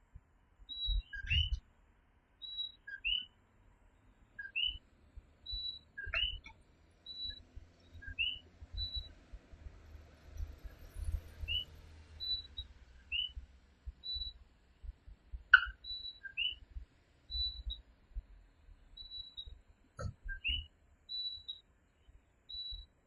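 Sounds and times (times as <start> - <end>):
tree frogs calling: 0.7 - 1.6, 2.4 - 3.4, 4.4 - 4.8, 5.4 - 7.4, 8.0 - 9.1, 11.4 - 13.4, 14.0 - 14.4, 15.5 - 16.7, 17.3 - 17.8, 19.0 - 21.6.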